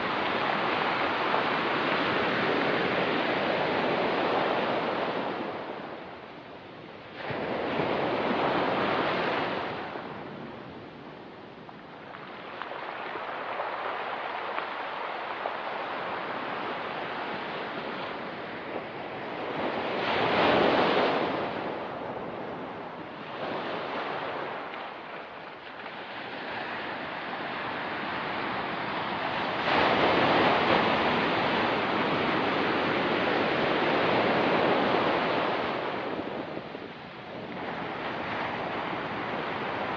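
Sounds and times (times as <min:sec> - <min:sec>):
surf breaking on rocky beach: 0:23.3 - 0:39.9.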